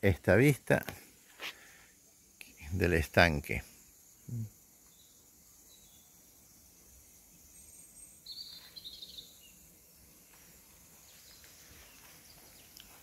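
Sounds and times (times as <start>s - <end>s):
faint high hiss: 0.0s - 13.0s
bird chirping: 4.8s - 10.3s, 10.9s - 13.0s.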